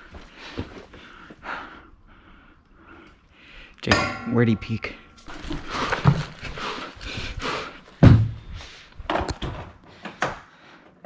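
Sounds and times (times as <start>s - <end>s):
shuffling and rustling: 5.2s - 9.8s.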